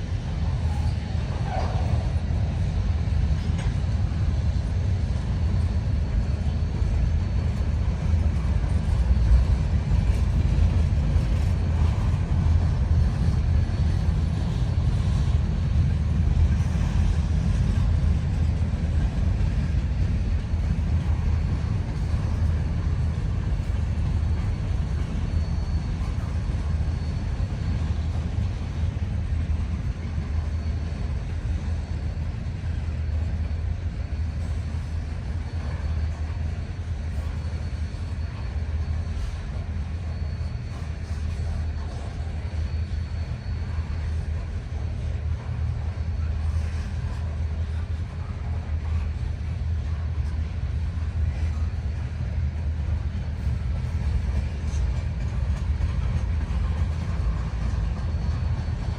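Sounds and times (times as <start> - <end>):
freight train cars rolling on rails: 0.0 - 58.9.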